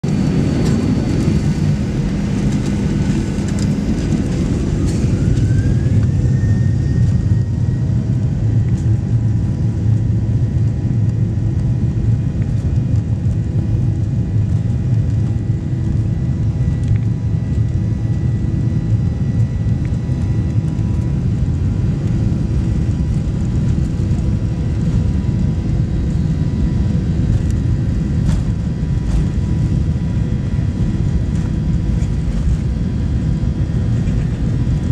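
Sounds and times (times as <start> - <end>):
jet engine whine rising: 0.0 - 34.9
jet engines rumbling: 0.0 - 34.9.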